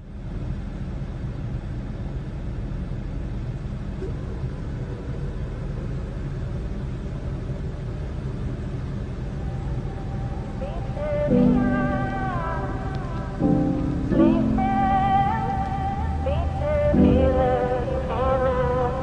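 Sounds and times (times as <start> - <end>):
car engine low rumble: 0.0 - 19.0.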